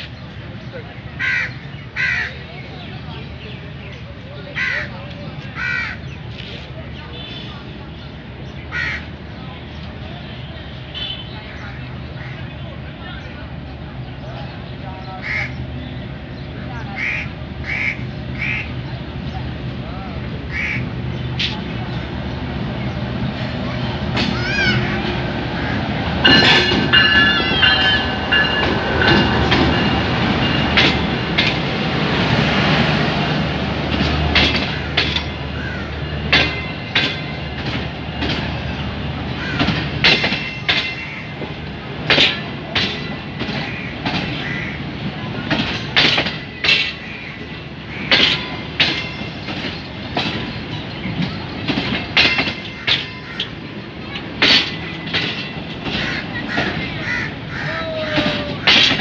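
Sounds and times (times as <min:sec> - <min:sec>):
train wheels clickety-clack: 0:21.1 - 0:59.0.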